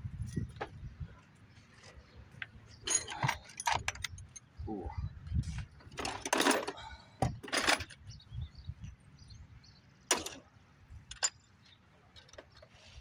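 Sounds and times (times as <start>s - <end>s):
tools clattering and clinking: 2.4s - 4.6s, 5.4s - 8.1s, 10.1s - 11.5s.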